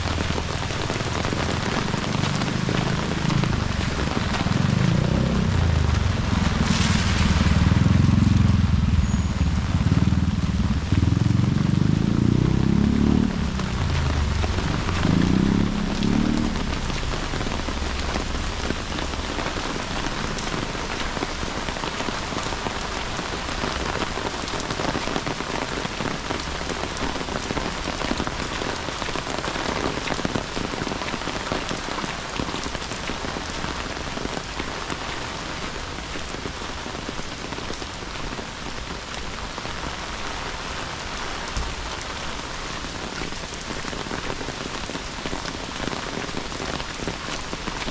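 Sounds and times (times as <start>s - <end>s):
steady rain: 0.0s - 47.9s
low rumble: 3.0s - 21.1s.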